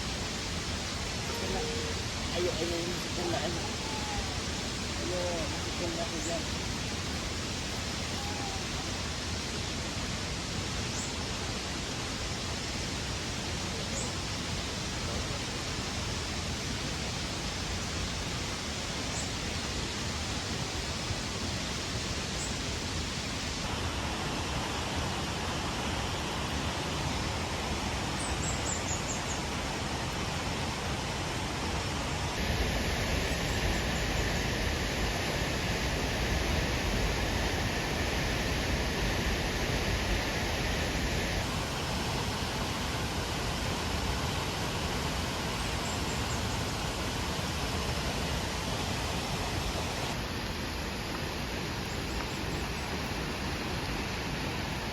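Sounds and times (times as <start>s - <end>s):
heavy rain falling: 0.0s - 10.1s.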